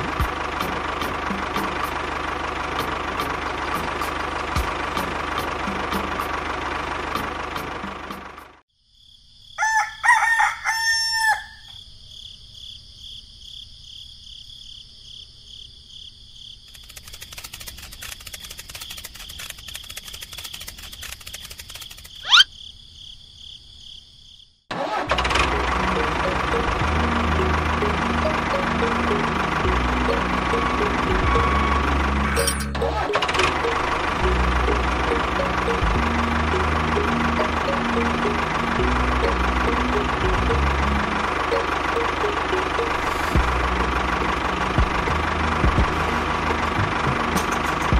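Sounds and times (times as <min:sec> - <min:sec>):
tractor engine: 0:00.0 - 0:08.6, 0:16.7 - 0:22.3, 0:24.7 - 0:47.9
rooster crowing: 0:09.5 - 0:11.8
rapid clicking: 0:16.7 - 0:22.2
high-pitched background tone: 0:25.4 - 0:44.6.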